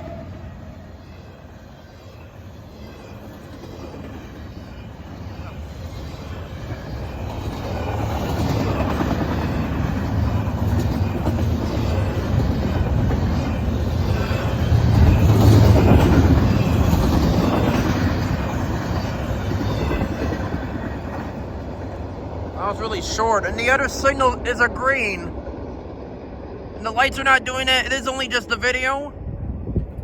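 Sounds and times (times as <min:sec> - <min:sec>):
freight train wheels rumbling on rails: 0:00.0 - 0:27.6, 0:29.1 - 0:30.0.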